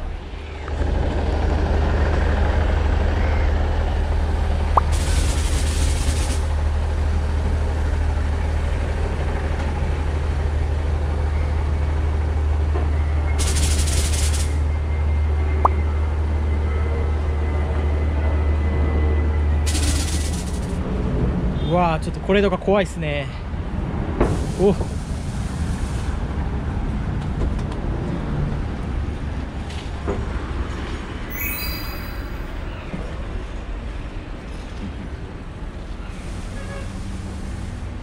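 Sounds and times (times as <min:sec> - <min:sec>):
standing train low drone: 0:00.0 - 0:22.2.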